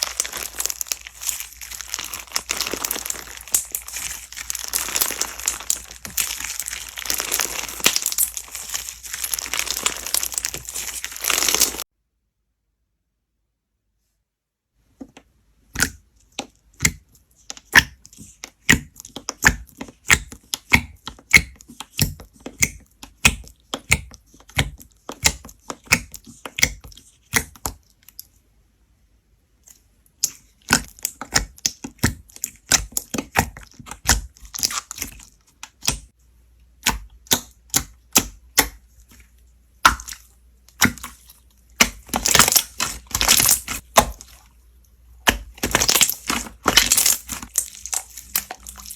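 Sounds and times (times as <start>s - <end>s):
slime squeezed by hand: 0.0s - 11.8s.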